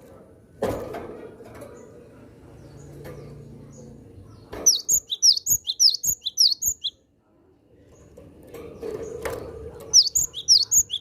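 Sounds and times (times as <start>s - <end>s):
bird chirping: 2.6s - 7.0s, 9.0s - 11.0s.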